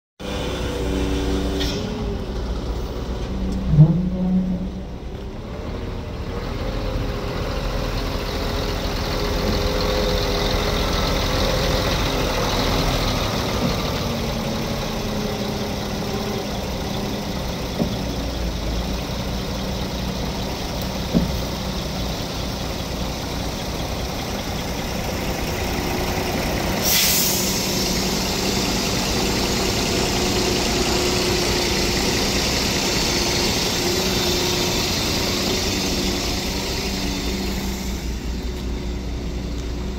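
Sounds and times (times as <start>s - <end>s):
heavy vehicle engine idling: 0.2s - 39.9s
air hiss: 26.8s - 29.7s.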